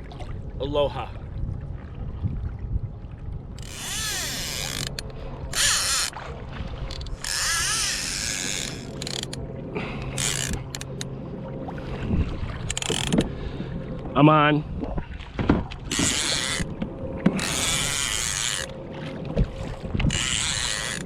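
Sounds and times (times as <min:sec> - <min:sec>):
fishing reel clicker ratcheting: 0:03.6 - 0:06.1, 0:06.9 - 0:09.4, 0:10.0 - 0:11.1, 0:12.7 - 0:13.3, 0:15.9 - 0:16.7, 0:17.4 - 0:18.7, 0:20.1 - 0:21.0.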